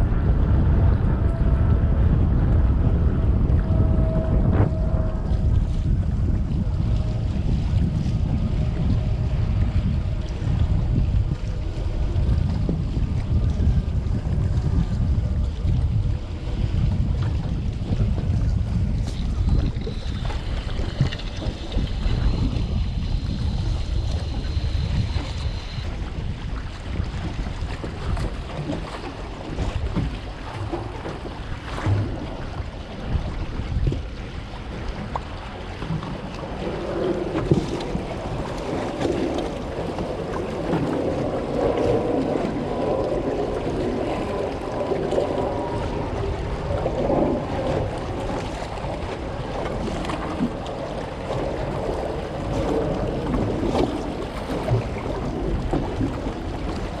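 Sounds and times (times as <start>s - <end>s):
sea waves: 0.0s - 57.0s
wind buffeting microphone: 0.0s - 57.0s.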